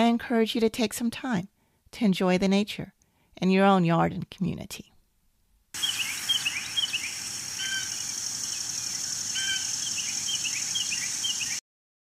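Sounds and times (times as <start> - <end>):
birds chirping: 5.8 - 11.6
steady high-pitched hiss: 5.8 - 11.6.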